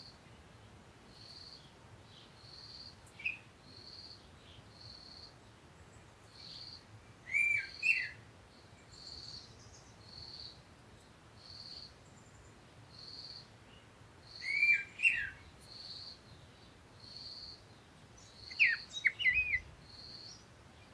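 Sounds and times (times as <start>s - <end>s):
bird two-part call: 18.4s - 19.6s.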